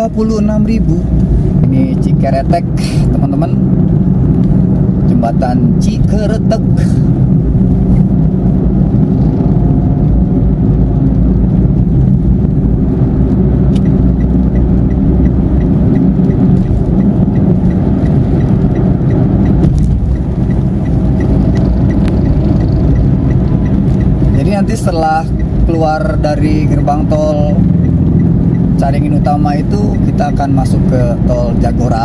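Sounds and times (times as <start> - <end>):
car cabin road rumble: 0.0 - 32.0
faint regular ticking: 0.3 - 32.0.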